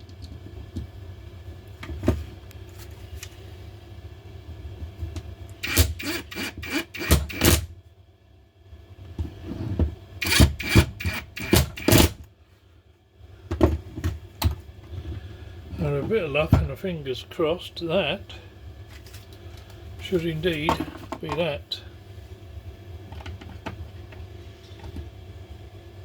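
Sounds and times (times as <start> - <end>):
screws rubbing and scraping plastic: 5.6 - 7.5, 10.2 - 12.2.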